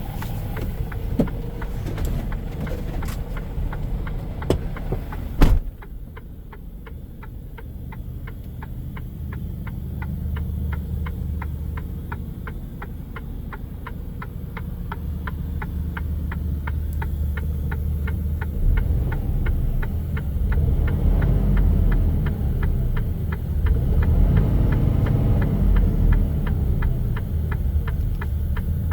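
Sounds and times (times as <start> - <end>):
truck diesel engine idling: 0.0 - 28.9
sharp thump: 4.5 - 5.9
indicator relay clicking: 5.7 - 28.9.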